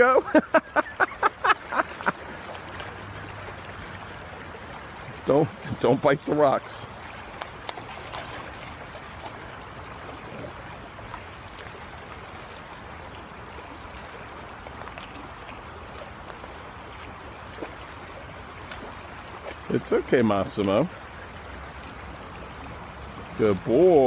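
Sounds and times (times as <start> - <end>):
creek water rushing over rocks: 0.0 - 24.0.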